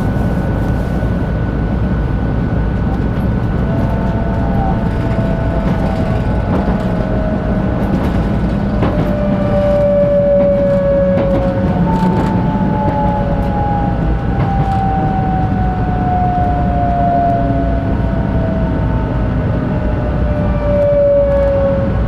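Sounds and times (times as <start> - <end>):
train electric motor whine: 0.0 - 22.0
train low rumble: 0.0 - 22.0.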